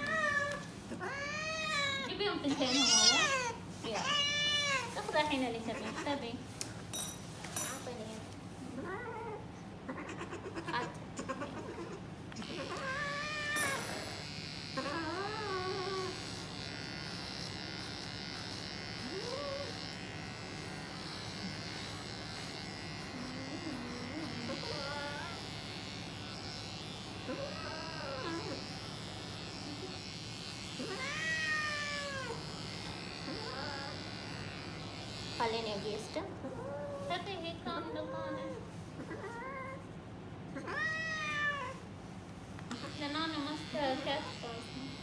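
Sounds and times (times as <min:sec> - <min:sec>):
cat yowling: 0:00.0 - 0:05.0, 0:08.9 - 0:13.9, 0:30.8 - 0:32.4, 0:40.6 - 0:41.8
electric hair clipper buzzing: 0:12.3 - 0:36.4, 0:42.6 - 0:45.0.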